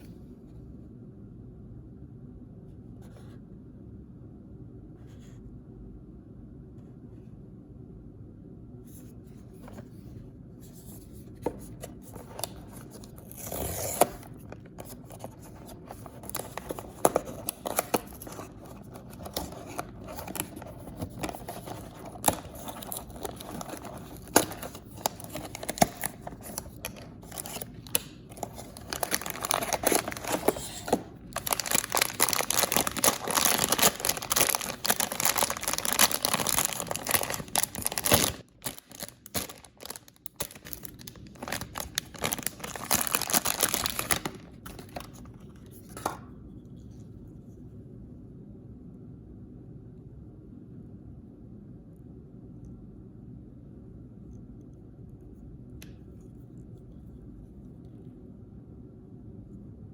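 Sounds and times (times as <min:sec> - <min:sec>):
packaging crinkling: 0:10.9 - 0:46.2
packaging tearing: 0:11.7 - 0:45.9.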